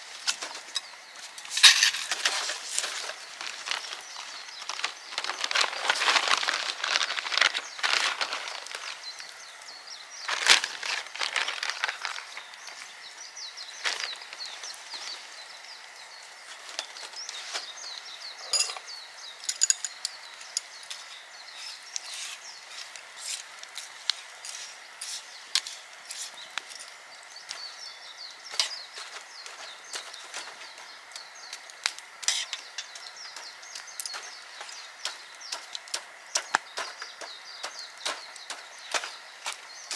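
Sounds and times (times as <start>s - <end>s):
faint steady hiss: 0.0s - 39.9s
sharp crackles and snaps: 22.8s - 39.9s.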